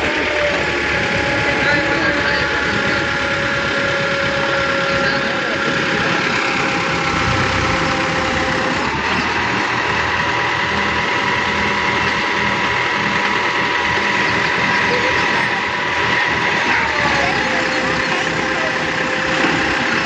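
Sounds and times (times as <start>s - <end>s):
heavy vehicle engine running: 0.0s - 20.0s
thin whine: 6.8s - 9.2s.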